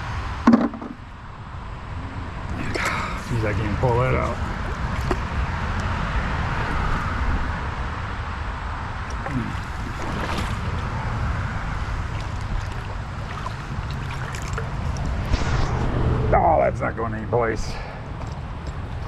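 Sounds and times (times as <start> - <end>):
wind rumble on microphone: 0.0 - 19.0
creek water flowing: 1.2 - 15.4.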